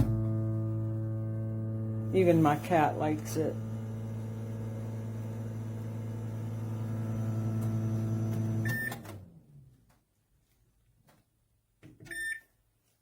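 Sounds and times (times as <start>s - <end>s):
microwave oven humming: 0.0s - 9.3s
microwave beep: 8.5s - 9.1s, 12.1s - 12.5s.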